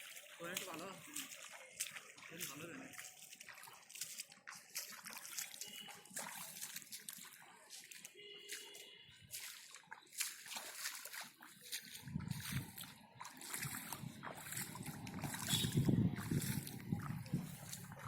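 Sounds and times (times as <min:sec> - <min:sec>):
muddy water splashing: 0:00.0 - 0:18.0.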